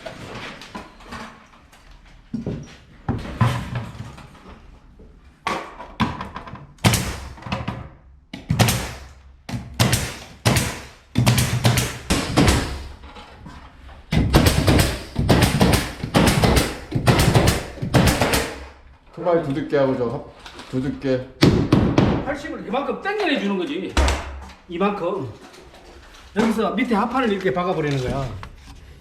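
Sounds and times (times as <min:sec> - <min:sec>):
knocks on wooden panels: 0:05.4 - 0:13.0, 0:14.1 - 0:18.7, 0:21.4 - 0:22.3.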